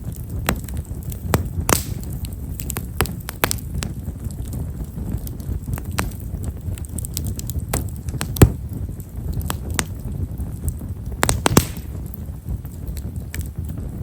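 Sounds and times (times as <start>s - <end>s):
campfire crackling: 0.0s - 14.0s
sharp loud pop: 1.4s - 2.1s, 11.2s - 12.0s.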